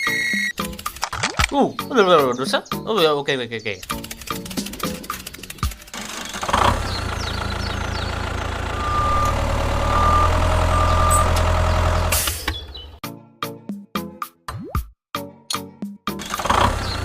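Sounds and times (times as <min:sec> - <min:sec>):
tractor engine running: 0:03.8 - 0:13.0, 0:16.2 - 0:17.0.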